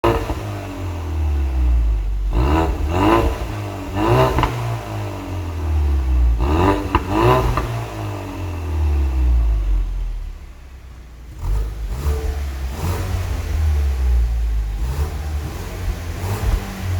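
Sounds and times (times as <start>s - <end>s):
car engine idling and revving: 0.0s - 16.9s.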